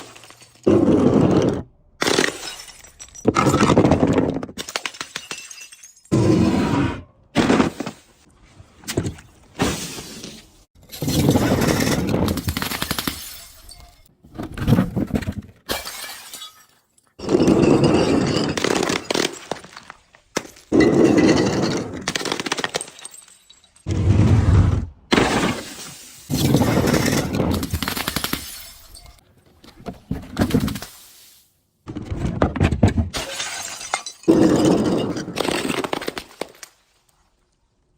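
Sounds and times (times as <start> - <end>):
glass bottles being crushed: 2.1 - 3.9, 4.5 - 6.2, 15.7 - 23.9, 33.2 - 36.7.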